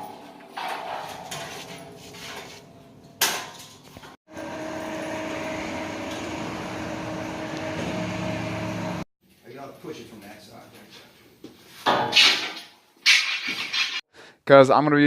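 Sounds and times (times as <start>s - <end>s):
metallic clank: 0.0s - 4.2s
mechanical hum: 1.9s - 9.0s.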